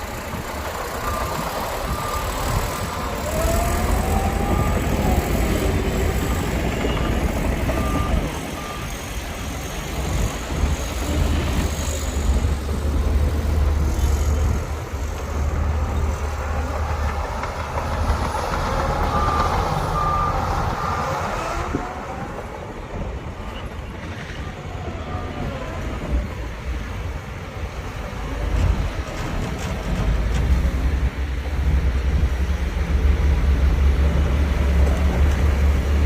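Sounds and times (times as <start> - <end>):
diesel machinery engine rumble: 0.0 - 36.0
reversing alarm beeping: 0.8 - 9.3, 18.2 - 21.9.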